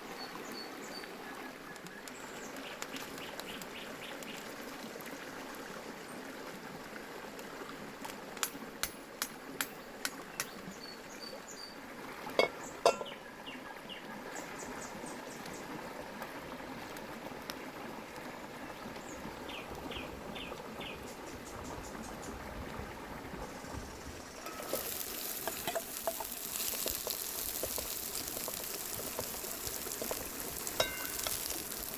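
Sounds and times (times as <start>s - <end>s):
birds chirping: 12.6s - 14.0s.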